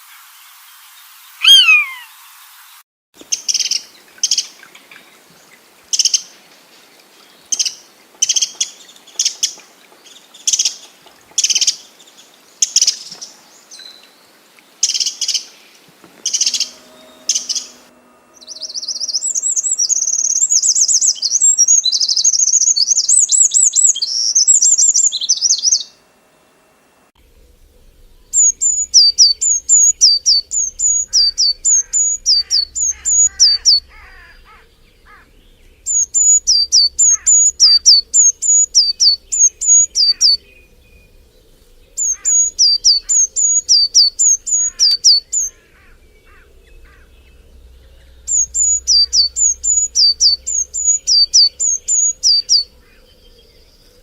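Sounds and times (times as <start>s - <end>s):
bird trilling: 1.4s - 2.1s, 16.2s - 25.9s, 28.1s - 41.3s, 41.9s - 53.5s
birds calling and singing: 1.4s - 2.1s, 3.2s - 26.0s, 27.4s - 54.0s.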